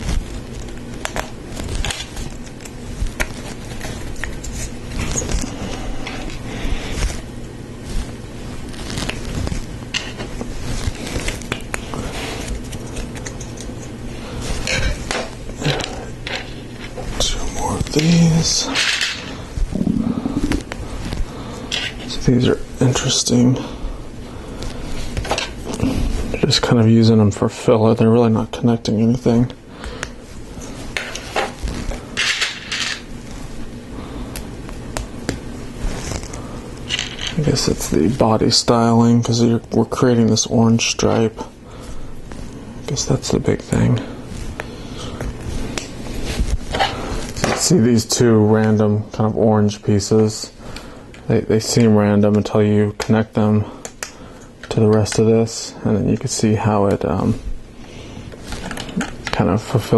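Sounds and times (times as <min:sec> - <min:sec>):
rustling scrapes: 0:00.0 - 0:22.4, 0:30.2 - 0:33.7, 0:35.5 - 0:38.4, 0:41.8 - 0:47.7.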